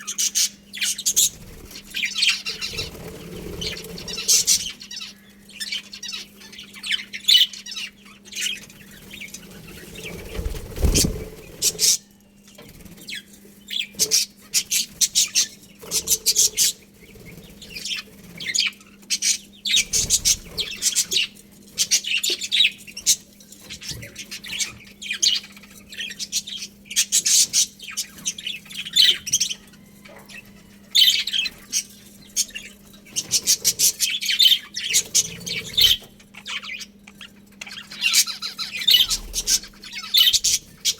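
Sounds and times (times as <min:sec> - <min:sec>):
budgerigars chirping and chattering: 0:00.0 - 0:40.9.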